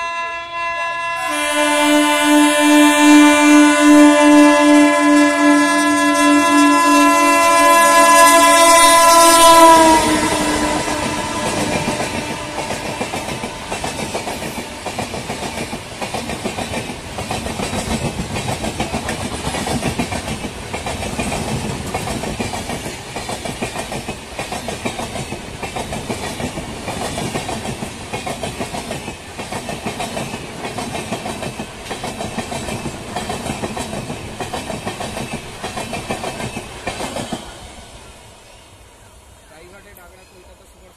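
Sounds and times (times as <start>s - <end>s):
locomotive horn chord: 0.0s - 14.9s
train wheels clattering over rails: 9.7s - 38.0s.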